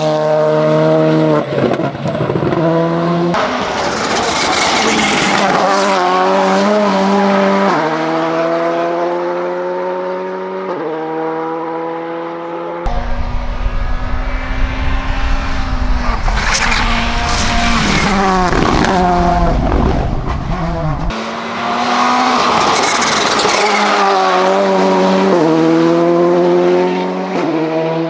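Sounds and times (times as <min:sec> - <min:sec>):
rally car engine revving: 0:00.0 - 0:28.0
bursts of rushing noise: 0:12.9 - 0:24.8.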